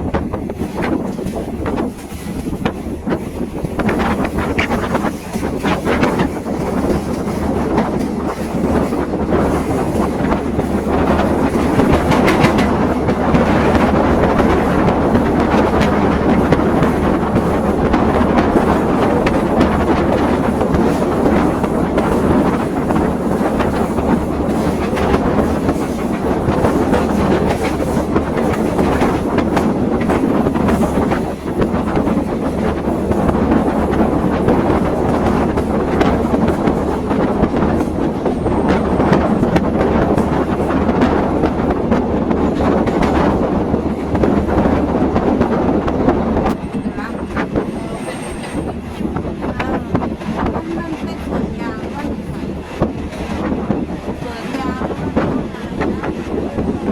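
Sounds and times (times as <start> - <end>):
train carriage rumble: 0.0 - 56.9
wheels clacking over rail joints: 0.0 - 56.9.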